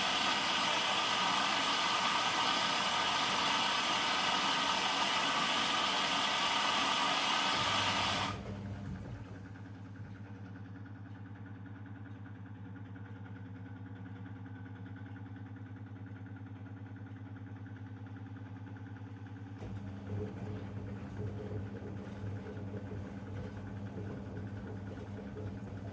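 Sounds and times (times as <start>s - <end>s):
washing machine motor hum: 0.0s - 11.0s, 19.5s - 25.9s.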